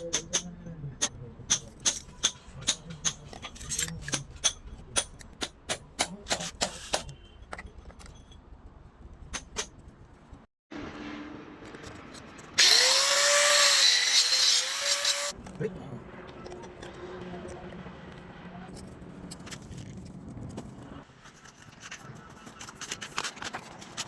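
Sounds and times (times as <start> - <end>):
power tool motor whine: 12.6 - 15.3.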